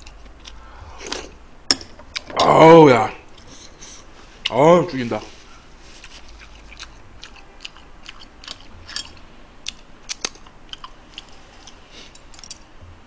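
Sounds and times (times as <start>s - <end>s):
man chewing: 0.0s - 1.4s, 3.3s - 4.5s, 5.4s - 12.3s
wet mouth clicks and smacks: 9.7s - 11.3s.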